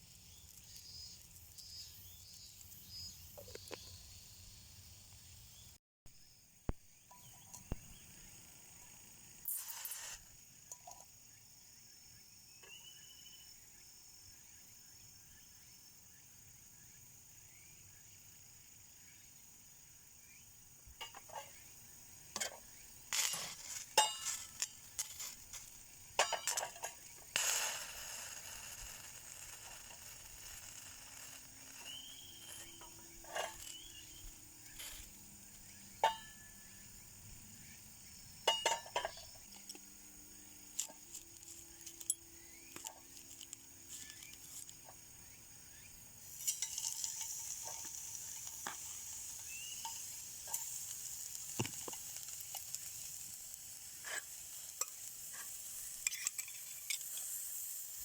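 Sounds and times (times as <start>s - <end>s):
faint drone of insects: 0.0s - 58.0s
tableware clinking: 38.5s - 39.3s.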